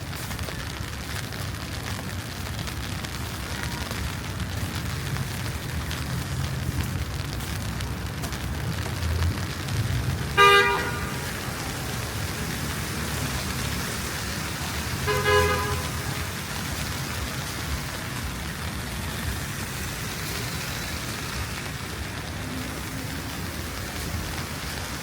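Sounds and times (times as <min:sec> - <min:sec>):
street traffic rumble: 0:00.0 - 0:25.0
car horn honking: 0:10.4 - 0:11.2, 0:15.0 - 0:16.1.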